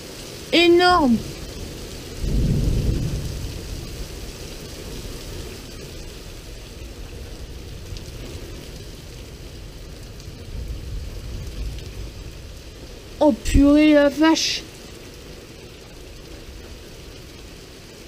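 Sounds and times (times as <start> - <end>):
heavy rain falling: 0.0 - 18.0
low thunder rumble: 0.8 - 18.0.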